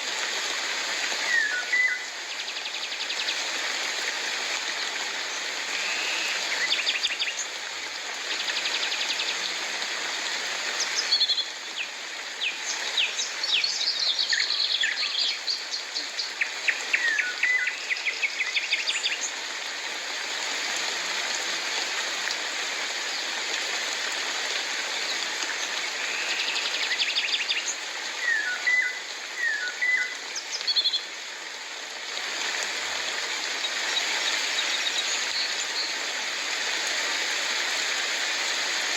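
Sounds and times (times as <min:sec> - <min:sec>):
rain hissing: 0:00.0 - 0:38.9.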